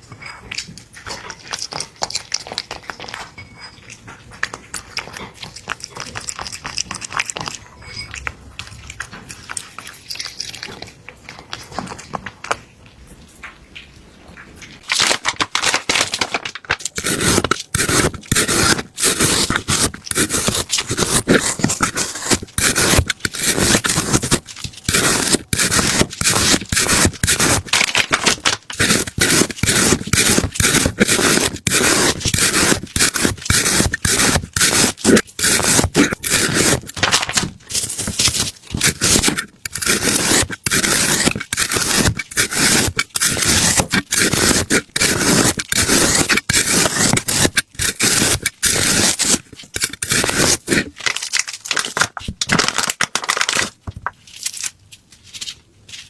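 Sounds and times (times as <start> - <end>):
rapid repeated scraping: 16.9 - 51.0.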